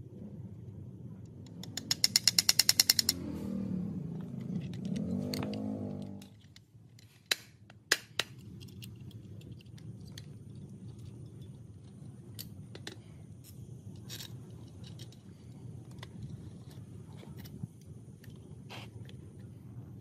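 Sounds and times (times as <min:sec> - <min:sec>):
low steady hum: 0:00.0 - 0:20.0
pitched hum: 0:02.8 - 0:06.5.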